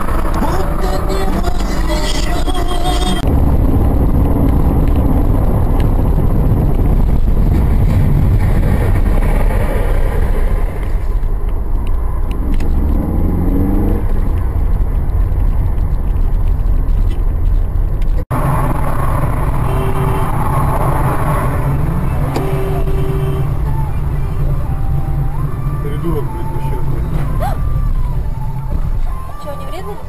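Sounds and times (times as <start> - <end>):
car engine: 0.0 - 30.0
road noise: 0.0 - 30.0.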